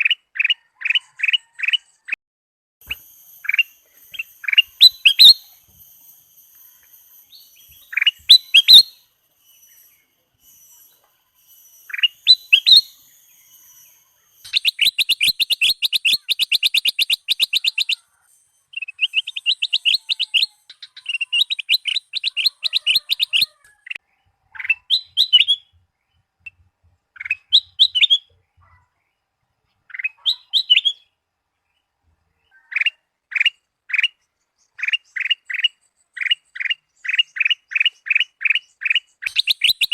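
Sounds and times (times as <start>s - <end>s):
bulbul singing whistled phrases: 2.8s - 25.7s, 27.2s - 28.9s, 29.8s - 31.2s, 32.4s - 39.9s
bird chattering runs: 18.8s - 24.0s, 37.1s - 39.9s.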